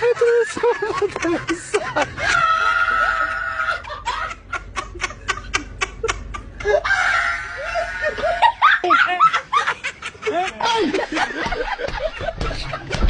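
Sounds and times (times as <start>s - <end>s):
person laughing: 0.0s - 13.0s.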